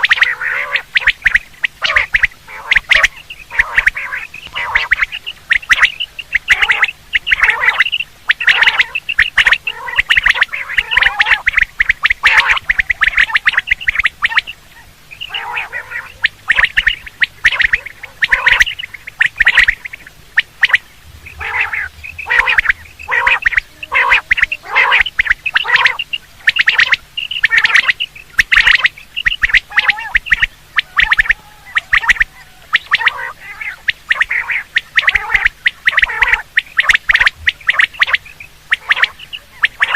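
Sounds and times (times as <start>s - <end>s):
quail calling: 0.0s - 39.9s.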